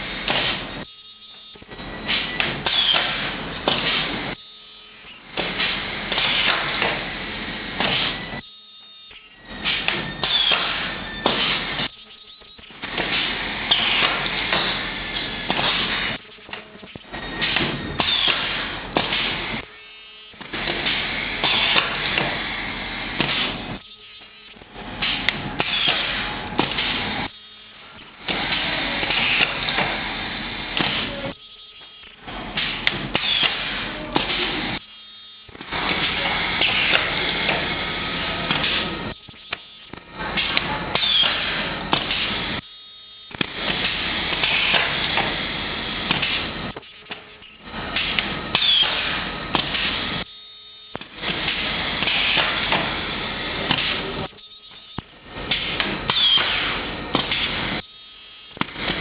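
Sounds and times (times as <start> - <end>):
welding machine mechanical noise: 0.0 - 59.0
sharp machine clicks: 48.0 - 50.0.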